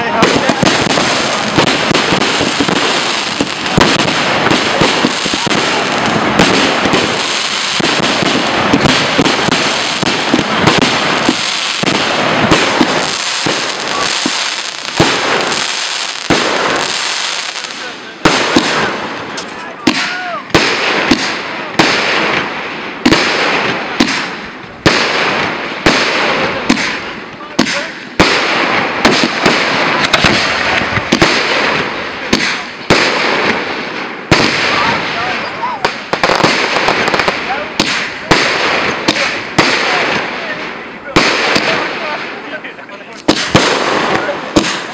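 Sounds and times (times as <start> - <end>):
fireworks bangs: 0.0 - 44.9
fireworks crackle: 0.0 - 44.9.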